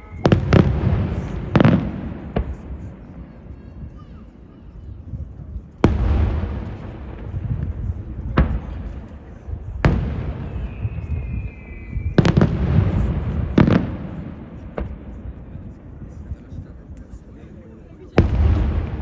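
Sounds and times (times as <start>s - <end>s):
faint firework whistle: 0.0s - 1.8s, 9.9s - 13.5s
fireworks bangs with echo: 0.0s - 17.3s, 18.0s - 19.0s.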